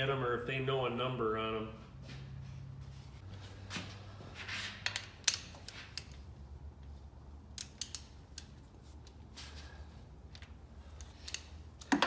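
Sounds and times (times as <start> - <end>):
clicks of parts and tools: 4.8 - 6.2, 7.5 - 9.7, 10.3 - 12.0.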